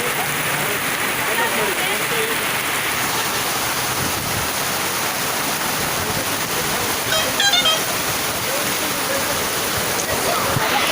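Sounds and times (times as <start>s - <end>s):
heavy rain: 0.0s - 10.9s
rushing floodwater: 0.0s - 10.9s
brief pitched sound: 7.1s - 7.9s.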